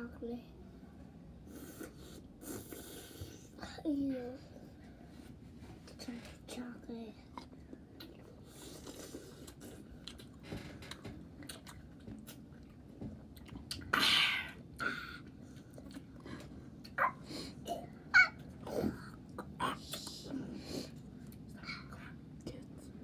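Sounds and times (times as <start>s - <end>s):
chewing and mouth sounds: 7.3s - 14.0s, 15.2s - 17.0s.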